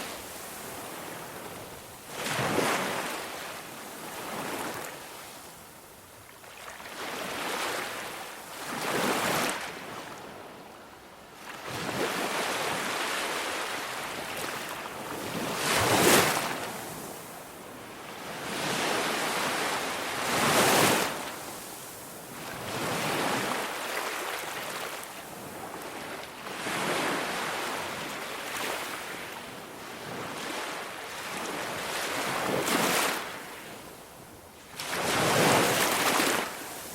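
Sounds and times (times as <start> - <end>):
ocean waves breaking: 0.0 - 4.9, 34.7 - 36.9.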